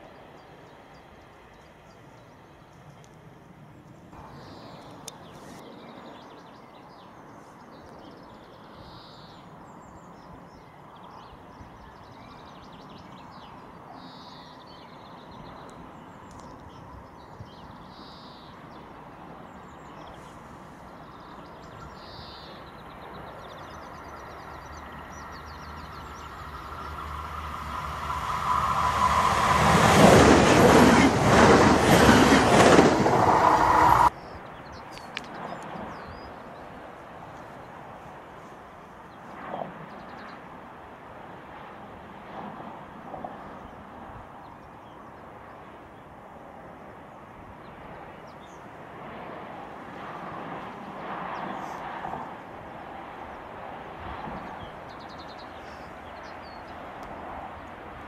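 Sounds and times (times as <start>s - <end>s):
high-speed train passing: 18.5s - 34.2s, 45.2s - 58.0s.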